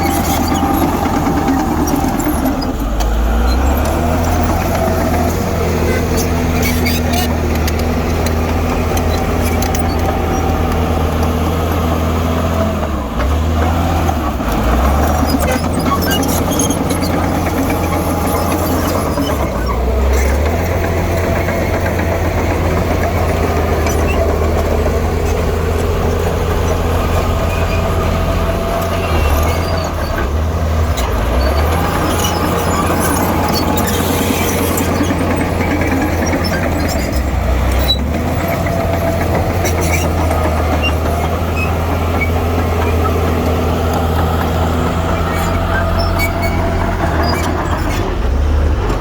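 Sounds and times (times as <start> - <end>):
diesel engine under load: 0.0 - 49.0.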